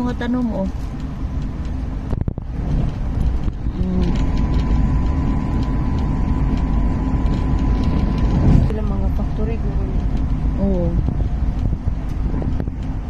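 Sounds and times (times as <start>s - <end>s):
train wheels rumbling on rails: 0.0s - 13.0s
thin steady whine: 3.5s - 11.8s.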